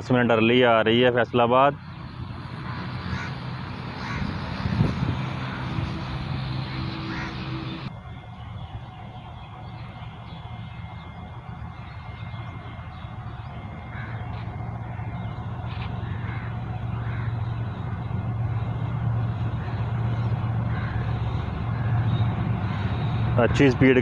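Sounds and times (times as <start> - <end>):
diesel locomotive engine drone: 0.0 - 24.0
crows cawing: 2.2 - 7.9, 13.6 - 23.7.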